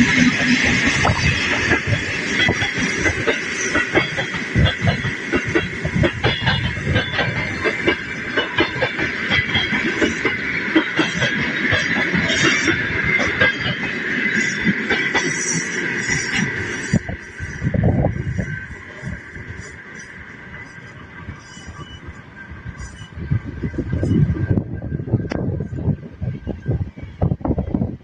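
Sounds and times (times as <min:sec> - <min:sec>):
train wheels clicking on track: 0:00.0 - 0:28.0
high-pitched whine: 0:15.2 - 0:28.0.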